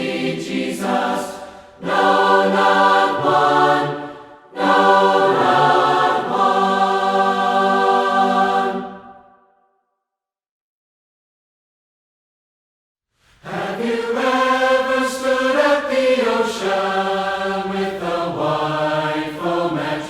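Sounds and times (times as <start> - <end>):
group singing a hymn a cappella: 0.0 - 9.4, 13.4 - 20.0.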